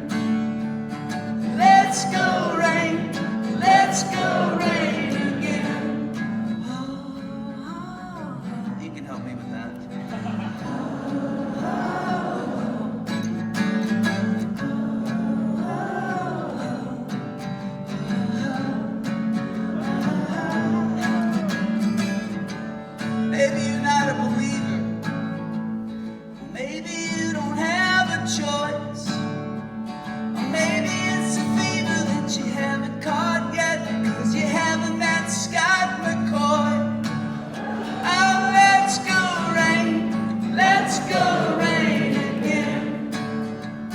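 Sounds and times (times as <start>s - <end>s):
acoustic guitar strummed: 0.0s - 43.9s
person singing: 1.5s - 8.9s, 18.0s - 22.0s, 37.4s - 43.4s.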